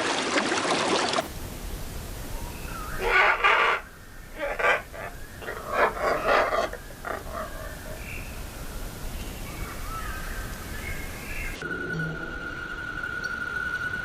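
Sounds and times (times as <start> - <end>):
animal giving harsh calls: 3.0 - 8.0.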